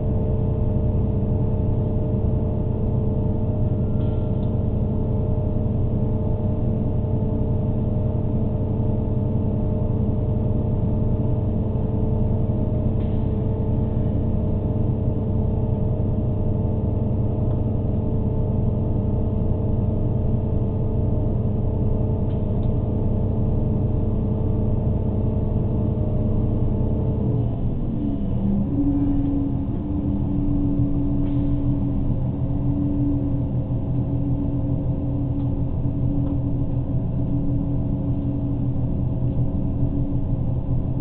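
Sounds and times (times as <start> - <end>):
steady tonal hum: 0.0 - 41.0
diesel train running: 22.9 - 41.0.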